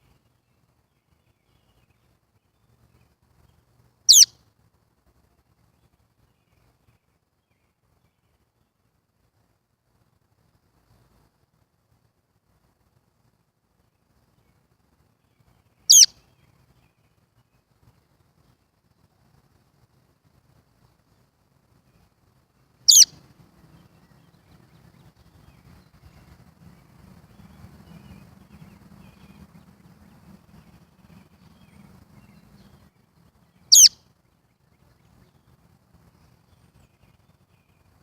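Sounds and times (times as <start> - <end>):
faint low rumble: 0.0 - 38.0
baby bird chirping: 4.1 - 4.3, 15.9 - 16.1, 22.9 - 23.1, 33.7 - 34.0.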